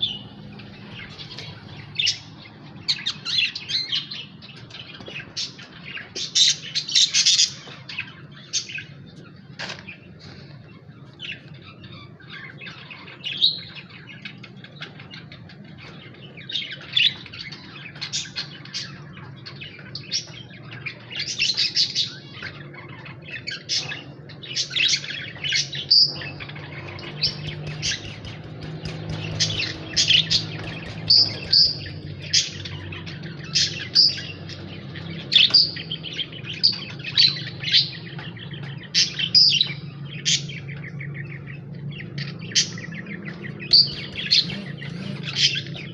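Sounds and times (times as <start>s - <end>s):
birds chirping shrilly: 0.0s - 45.9s
steady low hum: 39.8s - 45.9s.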